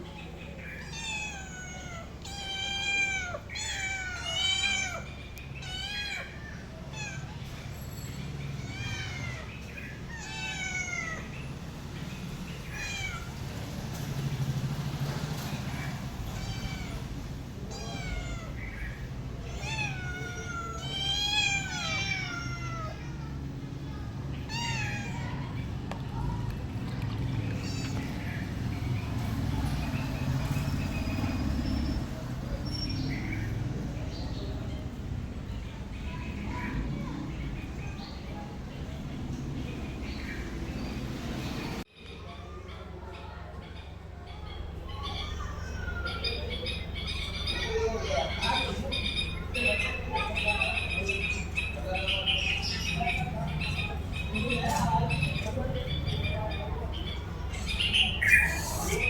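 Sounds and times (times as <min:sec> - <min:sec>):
cat meowing: 0:00.8 - 0:07.5, 0:08.5 - 0:11.3, 0:12.7 - 0:13.4, 0:16.3 - 0:23.2, 0:24.4 - 0:25.5.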